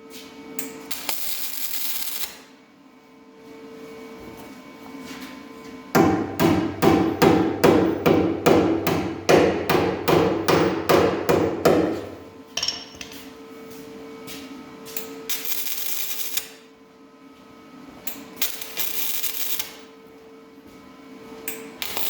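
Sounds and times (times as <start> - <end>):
hammer ringing on sheet metal: 6.0 - 12.9.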